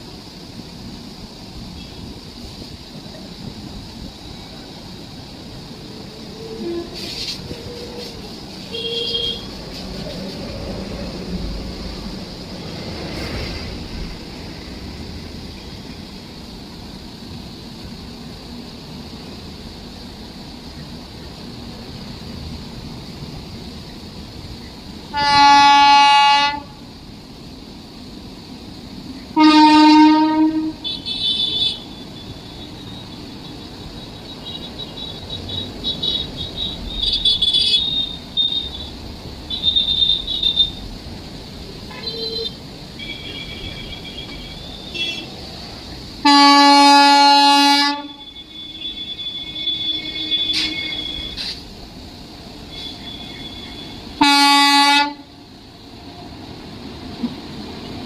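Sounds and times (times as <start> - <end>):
train rumbling: 0.0 - 58.0
train horn blasts: 6.6 - 7.3, 8.7 - 9.6, 25.1 - 26.8, 29.4 - 31.9, 41.9 - 45.3, 46.2 - 51.5, 52.7 - 55.3.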